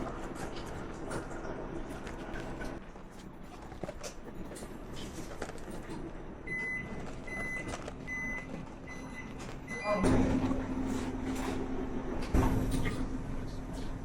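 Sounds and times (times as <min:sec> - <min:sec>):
electronic warning beeper: 0:06.5 - 0:11.0.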